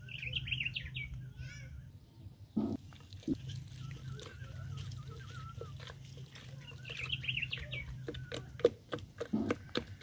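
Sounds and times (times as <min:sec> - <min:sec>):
birds calling: 0:00.0 - 0:10.0
steady low hum: 0:00.0 - 0:10.0
wooden spoon mashing in plastic jug: 0:03.4 - 0:10.0.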